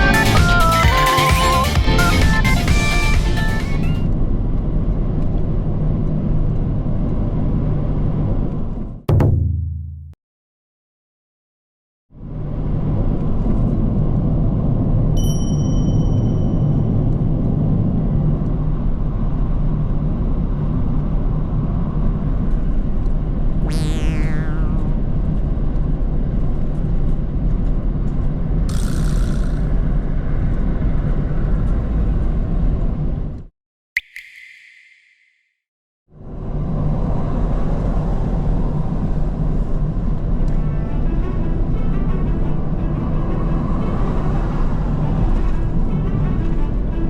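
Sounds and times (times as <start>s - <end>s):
short ding: 15.2s - 16.8s
short tone: 23.6s - 24.8s
vehicle rumble: 36.2s - 47.0s.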